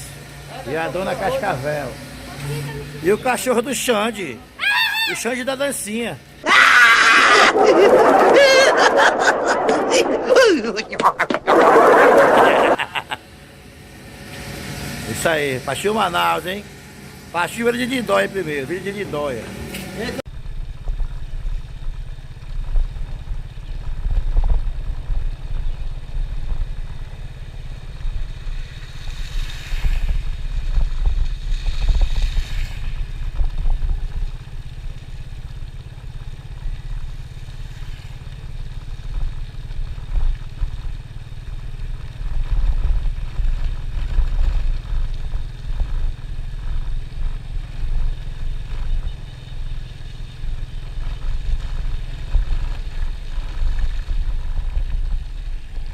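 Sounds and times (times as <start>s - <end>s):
motorcycle engine rumble: 0.0s - 55.9s
wind buffeting on microphone: 20.4s - 34.4s, 50.5s - 55.9s.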